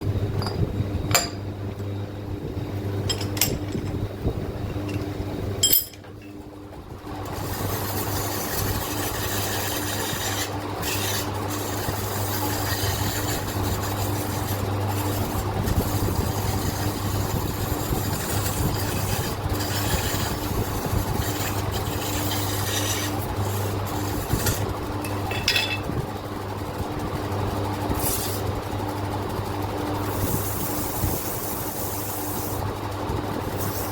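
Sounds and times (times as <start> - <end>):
steady low hum: 0.0 - 33.9
sandpaper rubbing on metal: 7.4 - 24.7, 27.9 - 28.5, 33.6 - 33.9.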